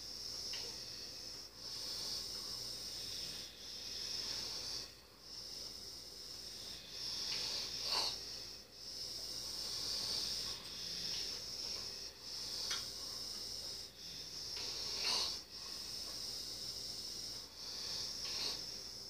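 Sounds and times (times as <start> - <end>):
snort: 0.4 - 19.0
person breathing in sleep: 6.5 - 19.0.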